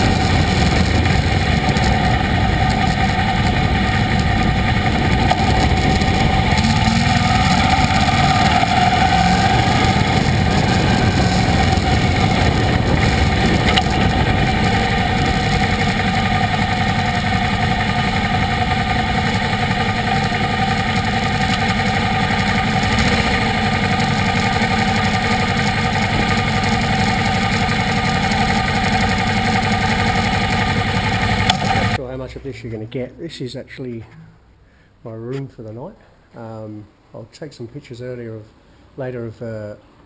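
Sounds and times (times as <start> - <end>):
motorcycle engine: 0.0 - 32.0
wind and road noise: 0.0 - 32.0.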